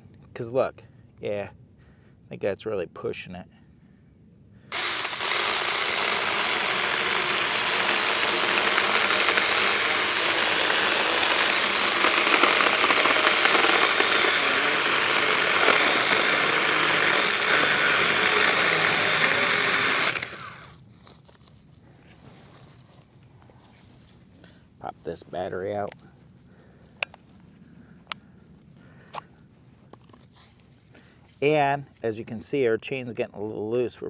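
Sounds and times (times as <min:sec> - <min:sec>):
chainsaw cutting branch: 0:04.7 - 0:20.7.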